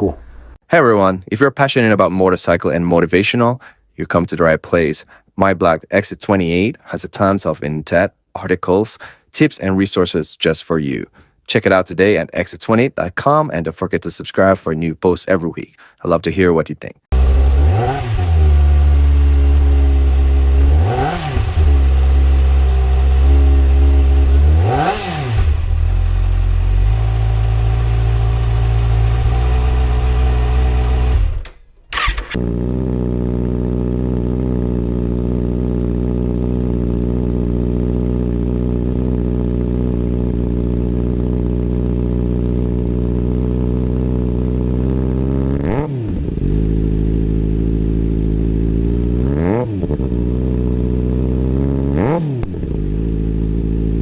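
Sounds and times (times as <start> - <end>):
motorcycle engine revving: 17.1 - 54.0
motorcycle engine idling: 18.4 - 20.7, 25.5 - 45.5, 46.1 - 49.2, 52.4 - 54.0.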